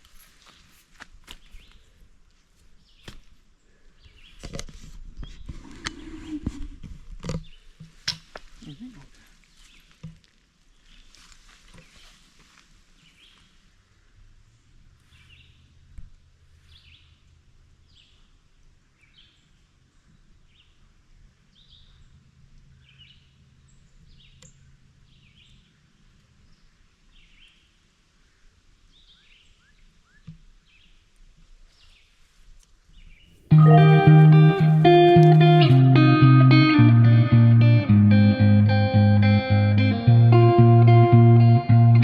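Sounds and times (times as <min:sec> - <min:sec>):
bird calling short notes: 0:33.5 - 0:35.9
guitar music: 0:33.5 - 0:42.0.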